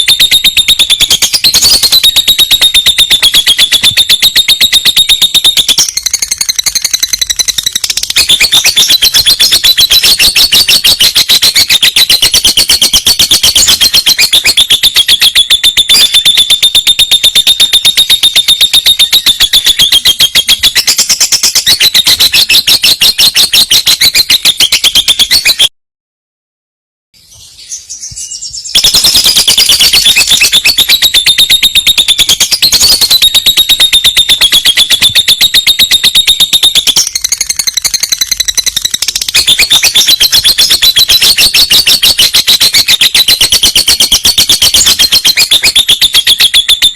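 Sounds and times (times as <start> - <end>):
bird chattering trill: 0.0 - 25.7, 27.7 - 46.9.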